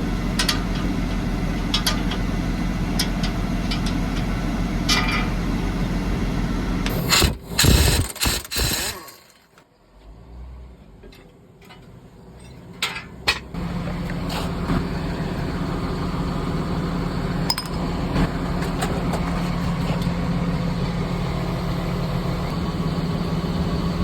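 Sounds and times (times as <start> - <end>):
machine running with low hum: 0.0 - 9.3, 13.6 - 24.0
sharp mechanical clicks: 6.9 - 9.5.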